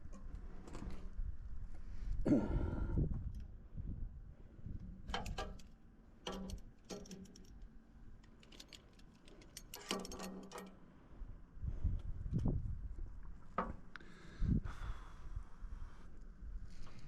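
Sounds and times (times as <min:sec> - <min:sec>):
light clicks and clinks: 0:08.2 - 0:10.8.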